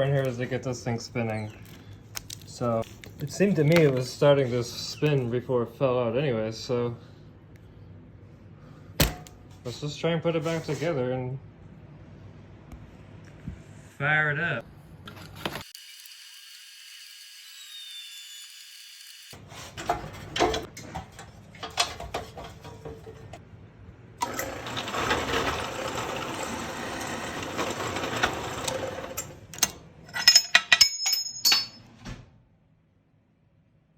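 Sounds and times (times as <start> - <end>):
small electric motor whirring: 15.6 - 19.4.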